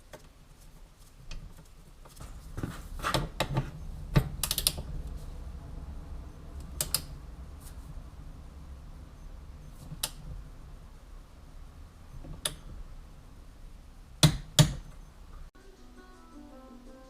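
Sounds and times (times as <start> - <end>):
low steady rumble: 0.0 - 15.6
sharp clicks and knocks: 1.3 - 4.9, 6.6 - 7.1, 14.2 - 15.0
quiet guitar music: 15.6 - 17.0.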